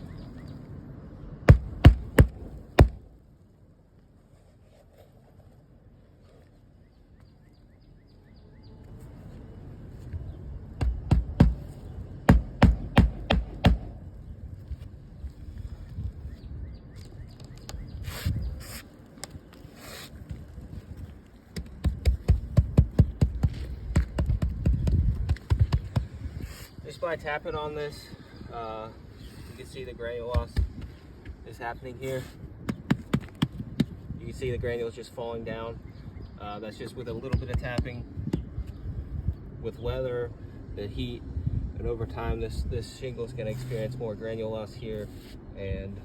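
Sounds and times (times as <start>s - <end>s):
tapping on roof shingle: 1.5s - 3.0s, 10.8s - 11.7s, 12.3s - 14.0s, 21.5s - 26.2s, 30.3s - 31.0s, 32.6s - 34.0s.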